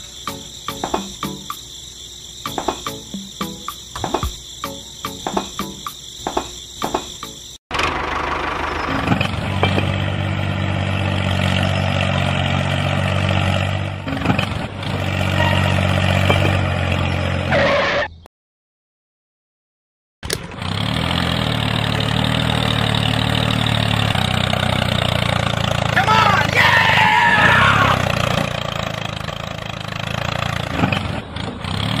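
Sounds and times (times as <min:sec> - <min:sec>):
model tractor motor humming: 0:07.7 - 0:12.8.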